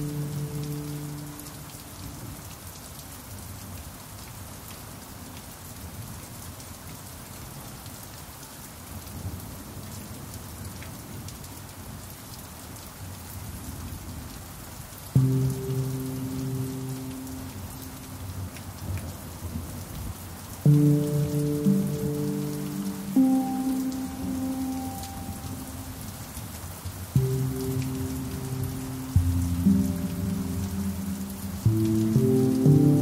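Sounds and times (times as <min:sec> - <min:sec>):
steady rain: 0:00.0 - 0:33.0.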